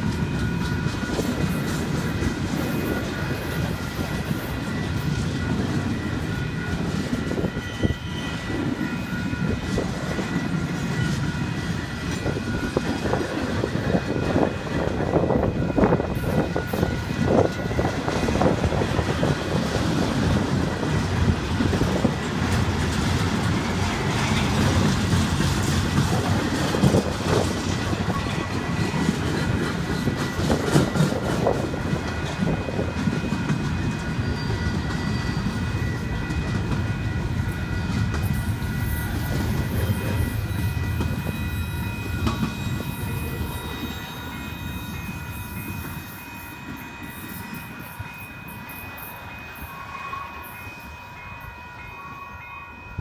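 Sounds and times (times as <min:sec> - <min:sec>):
train wheels clattering over rails: 0:00.0 - 0:44.5.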